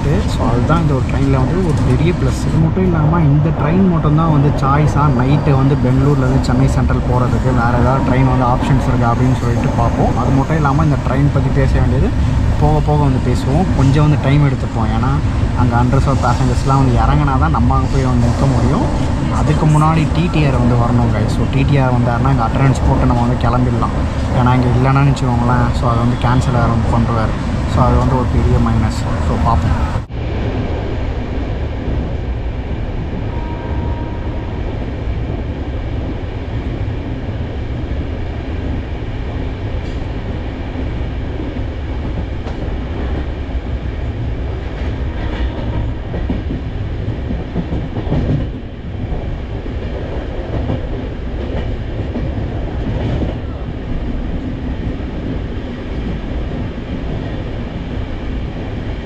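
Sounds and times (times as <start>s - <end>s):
faint track clacks: 0.0s - 2.8s
train wheels rumbling on track: 0.0s - 59.0s.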